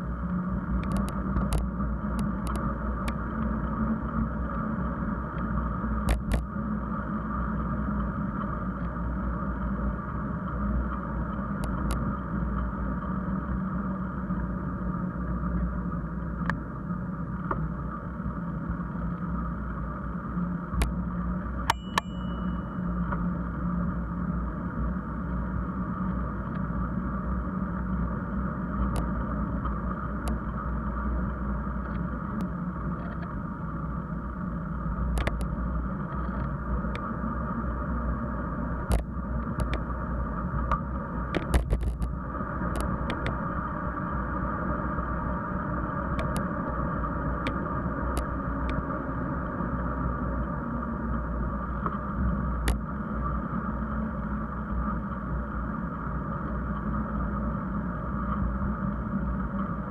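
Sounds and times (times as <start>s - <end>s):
bicycle rolling noise: 0.0s - 59.9s
wind rumble on camera: 0.0s - 59.9s
sharp clicks and rattles: 41.3s - 43.3s.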